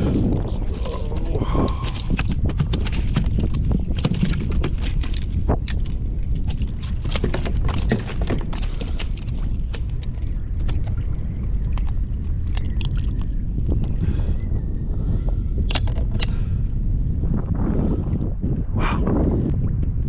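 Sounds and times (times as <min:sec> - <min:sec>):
wind rumble on microphone: 0:00.0 - 0:20.0
fishing gear clicking and knocking: 0:00.2 - 0:10.9, 0:15.6 - 0:16.4.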